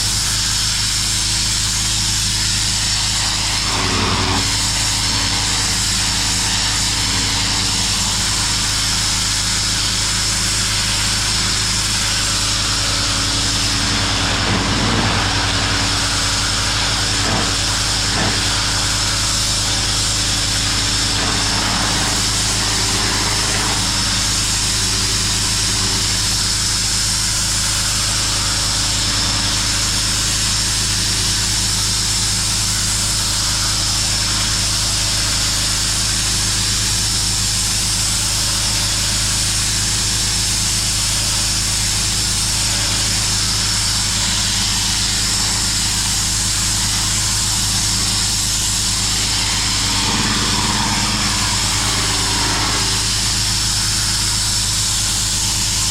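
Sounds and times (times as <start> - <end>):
pressure washer engine drone: 0.0 - 55.9
water jet spraying on concrete: 0.0 - 55.9.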